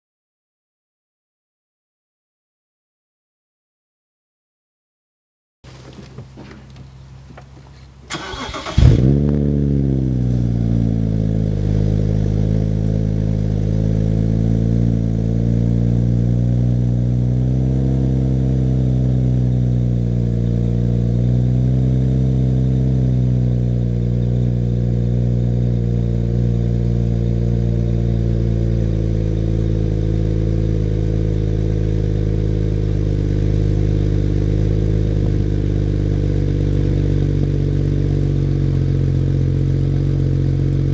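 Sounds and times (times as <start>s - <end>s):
car engine revving and idling: 5.7s - 40.9s
starter motor cranking: 8.1s - 9.0s.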